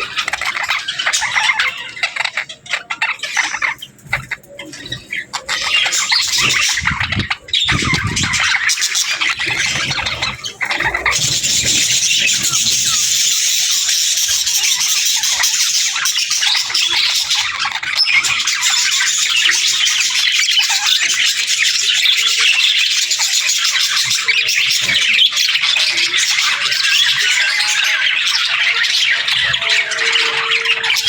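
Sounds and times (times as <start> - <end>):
budgerigars chattering: 0.0 - 31.0.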